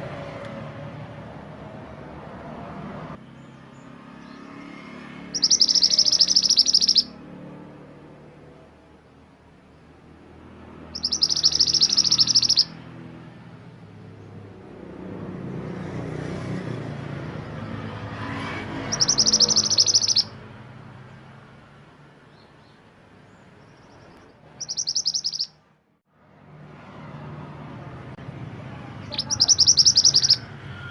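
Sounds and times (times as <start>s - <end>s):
songbird chattering trills: 5.3s - 7.1s, 11.0s - 12.7s, 18.9s - 20.3s, 23.6s - 25.5s, 29.0s - 30.4s.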